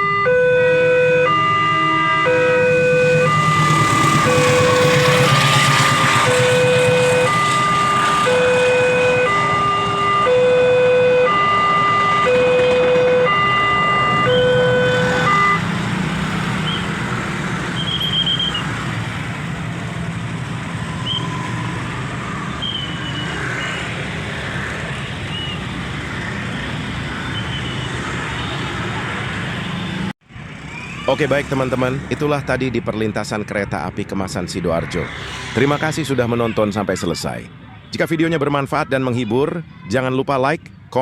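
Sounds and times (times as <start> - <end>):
level crossing two-tone alarm: 0.0 - 15.8
road traffic noise: 0.0 - 41.0.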